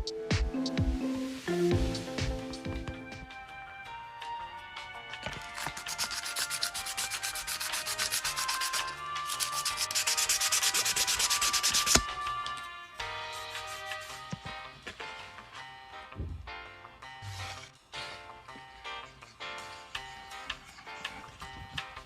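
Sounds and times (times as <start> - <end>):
knife scraping on sharpener: 5.3 - 12.0.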